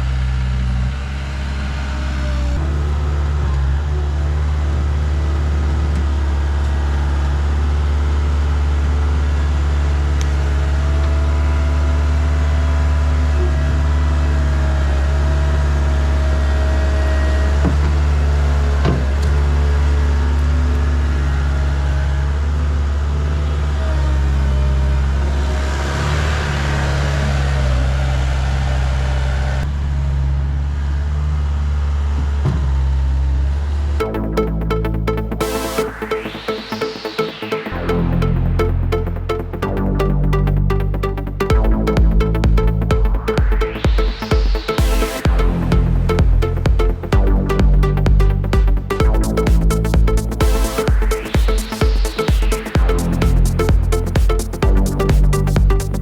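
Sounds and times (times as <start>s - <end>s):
diesel engine running: 0.0s - 56.0s
high whine: 34.0s - 56.0s.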